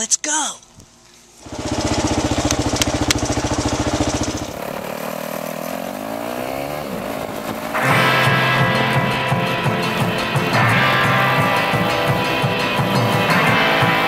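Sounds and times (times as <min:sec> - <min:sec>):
motorcycle engine running: 0:01.4 - 0:14.0
sharp clicks: 0:02.3 - 0:04.5.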